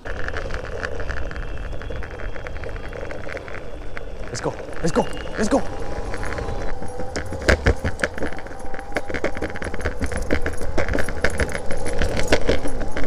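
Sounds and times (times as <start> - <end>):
wheels rolling on pavement: 0.0 - 13.0
metallic jingling of dog tags: 6.7 - 13.0.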